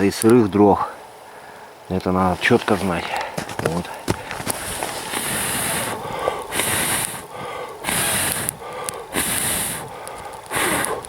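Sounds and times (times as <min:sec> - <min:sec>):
footsteps crunching in snow: 0:02.2 - 0:06.2.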